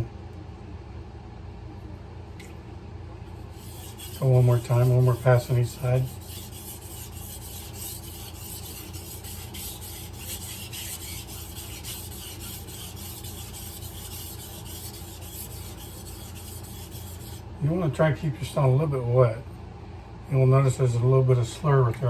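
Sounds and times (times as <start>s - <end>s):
knife scraping on whetstone: 3.4s - 17.4s.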